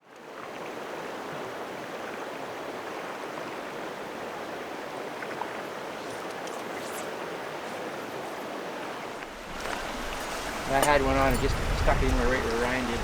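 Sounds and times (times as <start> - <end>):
flowing river rushing: 0.1 - 13.0.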